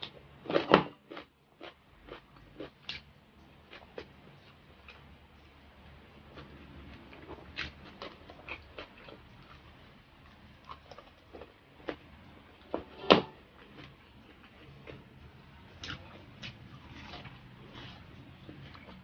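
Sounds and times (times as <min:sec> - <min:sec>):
wet chewing: 0:06.3 - 0:12.1.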